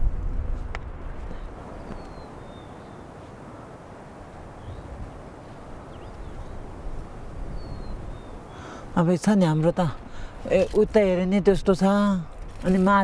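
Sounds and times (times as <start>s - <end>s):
low steady rumble: 0.0s - 1.8s.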